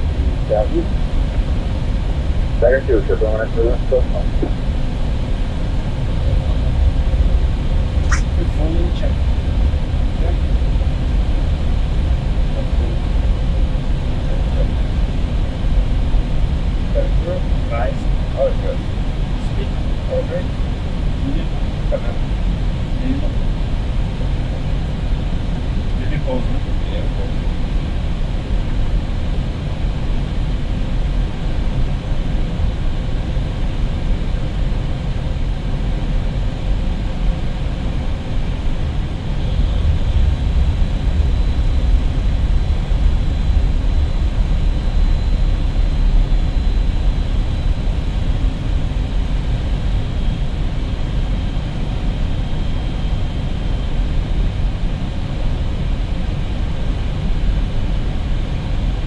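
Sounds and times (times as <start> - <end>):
aircraft engine noise: 0.0 - 59.0
airflow rush in aircraft cabin: 0.0 - 59.0.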